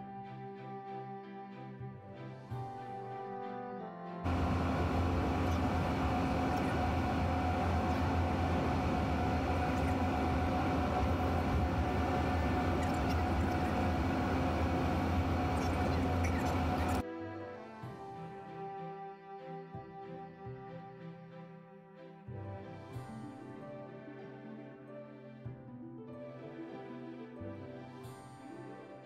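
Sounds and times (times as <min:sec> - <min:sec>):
mechanical rumble with low hum: 0:04.3 - 0:17.0.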